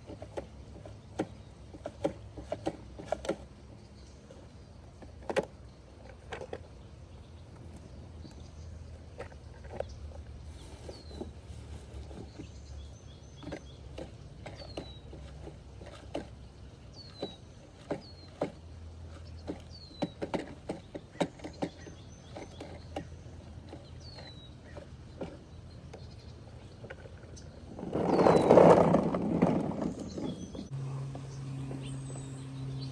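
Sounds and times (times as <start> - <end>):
bird chirping: 0.0 - 32.9
plastic toy clicks and knocks: 17.1 - 25.4.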